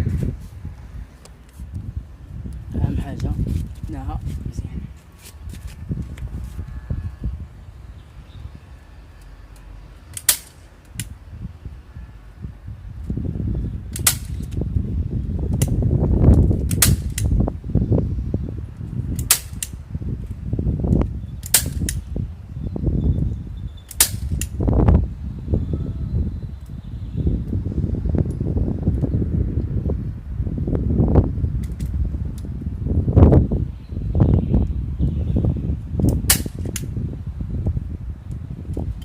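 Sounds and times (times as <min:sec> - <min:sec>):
low rumbling handling noise: 0:00.0 - 0:11.8
sharp snapping clicks: 0:09.5 - 0:11.1, 0:21.4 - 0:22.0.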